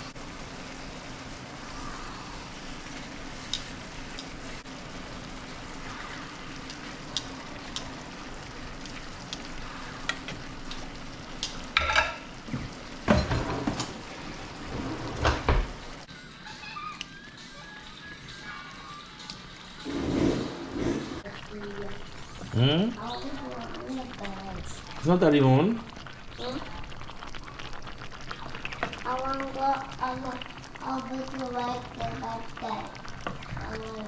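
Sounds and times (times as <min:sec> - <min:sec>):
fish sizzling in a pan: 0:00.0 - 0:14.7, 0:21.2 - 0:34.0
pan and utensils clattering: 0:11.4 - 0:15.8.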